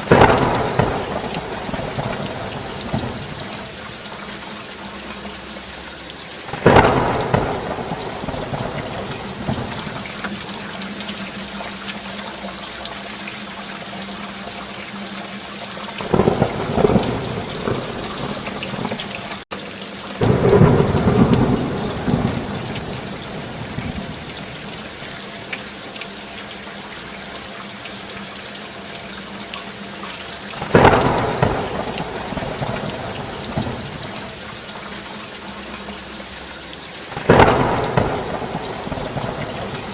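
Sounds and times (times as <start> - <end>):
thunder rolling: 0.0 - 3.7, 6.5 - 10.4, 16.0 - 19.4, 20.2 - 24.8, 30.6 - 34.4, 37.2 - 39.9
heavy rain: 0.0 - 39.9.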